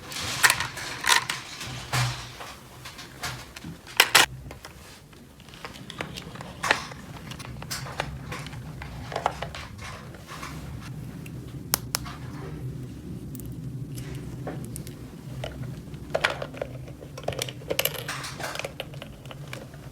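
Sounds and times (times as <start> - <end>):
low steady hum: 0.0 - 19.9
plastic toy pieces clicking: 3.9 - 4.3, 14.6 - 19.7.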